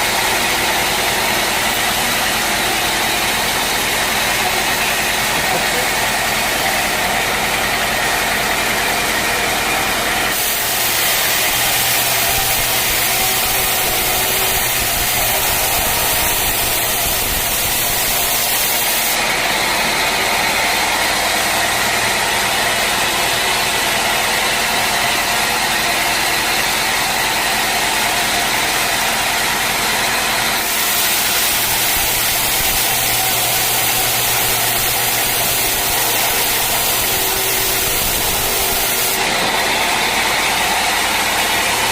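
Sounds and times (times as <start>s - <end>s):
sawmill sawing log: 0.0s - 41.9s
machine hum: 30.6s - 41.9s.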